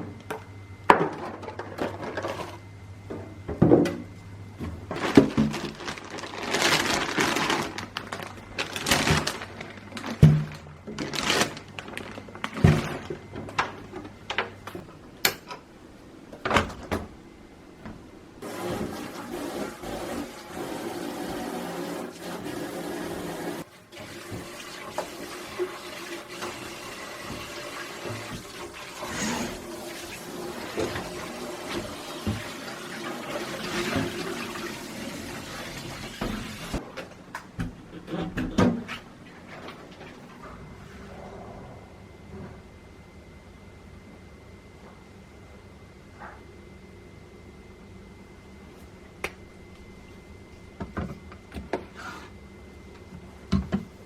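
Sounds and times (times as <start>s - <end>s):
kitchen items knocking and clattering: 0.0s - 15.6s
running water: 18.4s - 36.8s.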